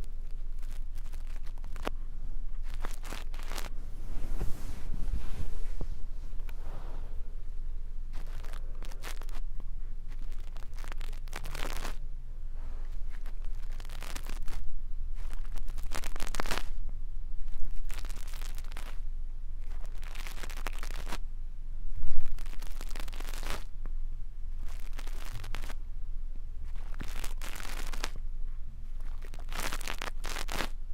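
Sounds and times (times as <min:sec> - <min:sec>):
brush bristles scratching microphone: 0:00.0 - 0:07.3, 0:08.1 - 0:12.0, 0:12.6 - 0:16.8, 0:17.4 - 0:19.0, 0:19.6 - 0:21.2, 0:22.0 - 0:23.7, 0:24.6 - 0:25.8, 0:26.6 - 0:28.2, 0:29.0 - 0:30.8
steady low hum: 0:00.0 - 0:30.9.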